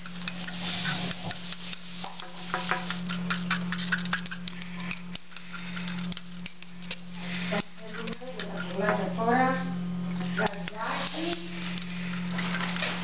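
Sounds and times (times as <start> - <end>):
small clicks and scrapes: 0.0 - 9.1
steady low hum: 0.0 - 13.0.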